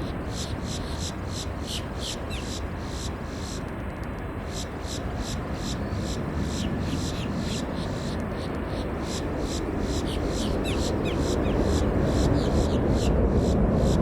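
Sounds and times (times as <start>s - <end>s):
jet airliner rumble: 4.3s - 14.0s.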